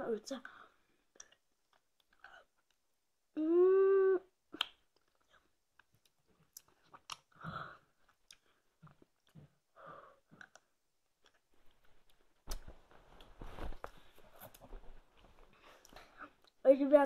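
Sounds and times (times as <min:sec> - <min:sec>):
wet chewing and mouth clicks: 0:01.1 - 0:02.9, 0:04.5 - 0:07.4, 0:08.0 - 0:09.7, 0:10.3 - 0:12.6
crackling mouth noise: 0:03.4 - 0:07.4.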